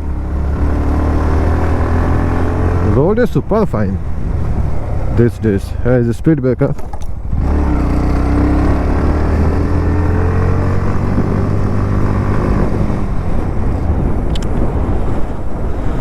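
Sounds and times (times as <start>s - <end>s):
motorcycle engine pulling away: 0.0s - 3.0s, 6.8s - 13.6s
wind rushing over microphone: 0.0s - 6.1s, 6.8s - 16.0s.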